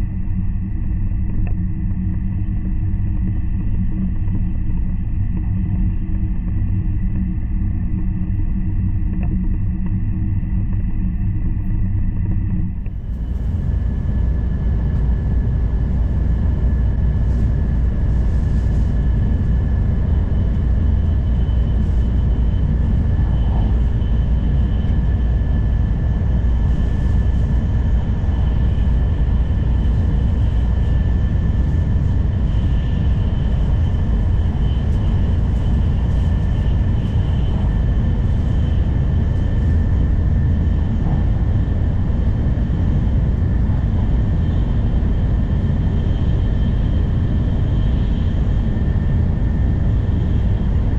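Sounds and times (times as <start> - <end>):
train low rumble: 0.0 - 50.9.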